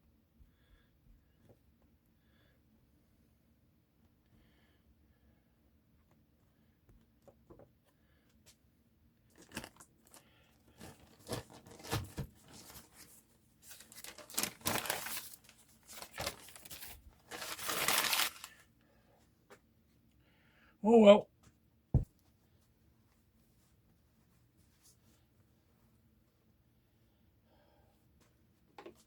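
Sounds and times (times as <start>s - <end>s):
paper crinkling: 9.3s - 18.6s
newspaper tearing: 10.8s - 13.0s, 13.7s - 18.6s.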